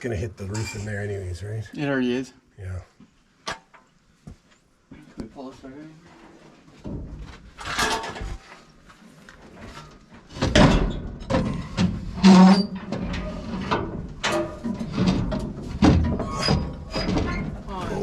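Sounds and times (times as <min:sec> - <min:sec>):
metal scraping and clunking: 0:09.5 - 0:18.0.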